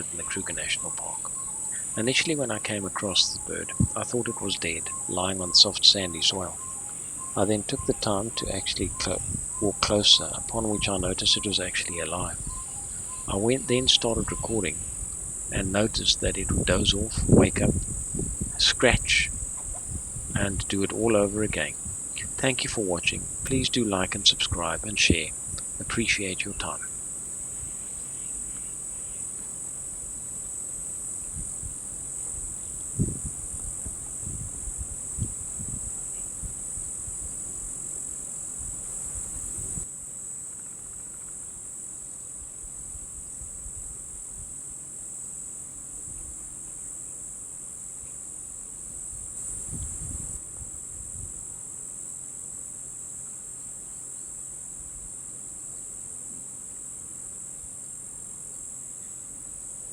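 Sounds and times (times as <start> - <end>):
insects shrilling: 0.0 - 44.4.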